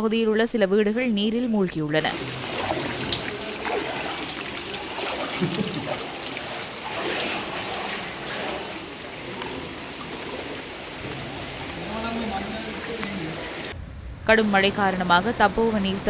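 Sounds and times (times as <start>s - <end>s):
floodwater rushing: 2.0s - 13.8s.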